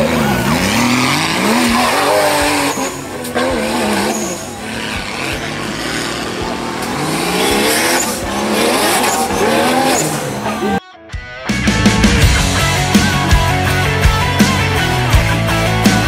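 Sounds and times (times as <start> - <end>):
buggy engine revving: 0.0 - 10.8.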